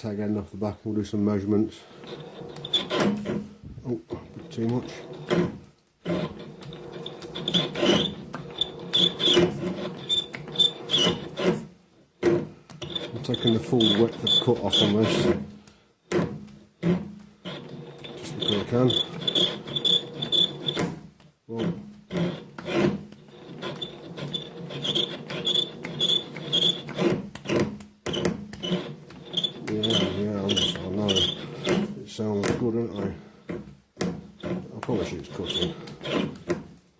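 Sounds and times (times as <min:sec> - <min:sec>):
lathe tool scraping metal: 0:01.7 - 0:15.5, 0:16.2 - 0:32.0, 0:34.4 - 0:36.6
short high squeaks: 0:02.0 - 0:03.5, 0:04.6 - 0:11.7, 0:12.8 - 0:15.4, 0:16.8 - 0:21.0, 0:21.6 - 0:31.9.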